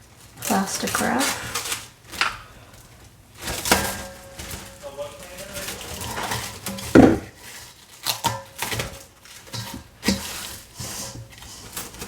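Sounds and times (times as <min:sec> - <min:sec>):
cling wrap crinkling: 0:00.0 - 0:12.0
knock: 0:07.0 - 0:07.3.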